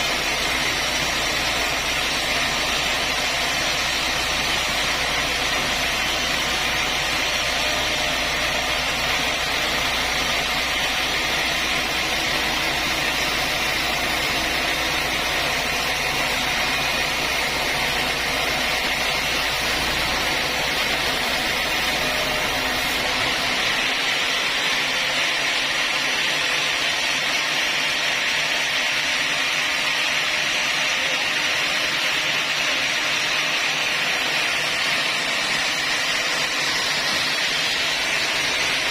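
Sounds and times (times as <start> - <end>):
sawmill saw running: 0.0 - 38.9.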